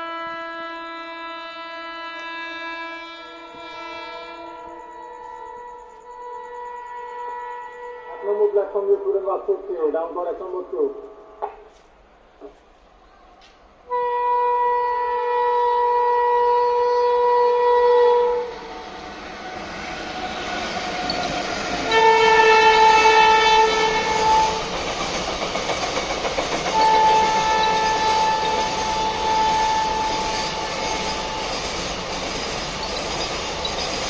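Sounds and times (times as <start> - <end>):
locomotive horn blasts: 0.0 - 9.0, 13.8 - 21.2, 21.8 - 24.7, 26.7 - 31.6
train wheels clattering on rails: 19.7 - 34.0.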